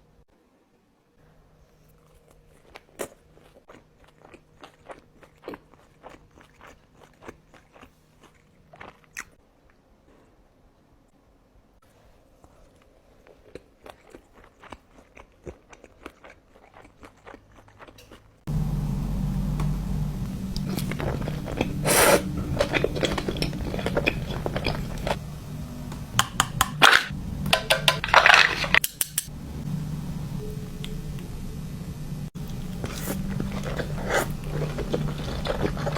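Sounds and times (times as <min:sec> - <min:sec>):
chewing and crunching food: 0:01.7 - 0:10.3, 0:12.2 - 0:18.5, 0:20.6 - 0:25.2, 0:32.4 - 0:35.9
low hum: 0:18.5 - 0:35.9.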